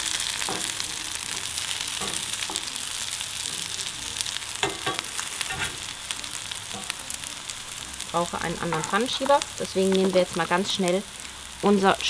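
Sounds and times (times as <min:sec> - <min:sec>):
patties sizzling in oil: 0:00.0 - 0:12.0
spatula scraping and tapping pan: 0:04.6 - 0:05.9.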